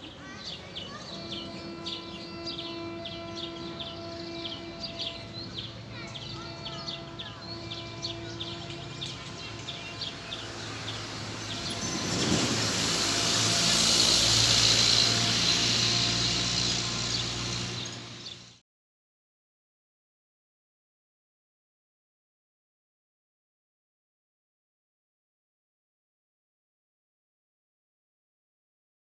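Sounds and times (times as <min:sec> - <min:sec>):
birds chirping: 0:00.0 - 0:18.6
loud steady rushing noise: 0:05.1 - 0:18.6.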